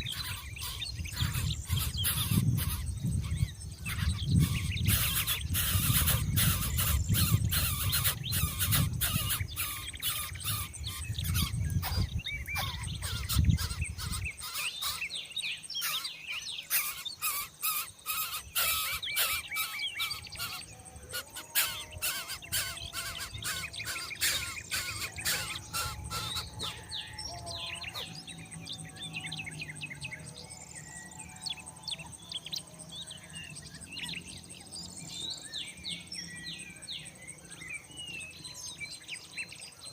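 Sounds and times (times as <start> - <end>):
birds chirping: 0.0 - 39.9
high insect drone: 12.6 - 39.9.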